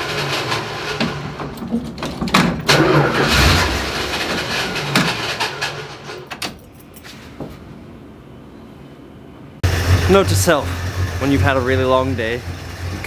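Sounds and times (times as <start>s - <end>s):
car engine cranking and running: 0.0s - 6.3s, 9.6s - 13.0s.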